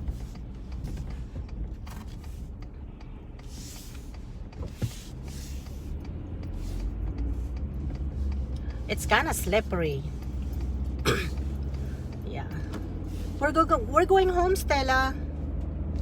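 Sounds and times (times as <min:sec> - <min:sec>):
road and engine rumble: 0:00.0 - 0:16.0.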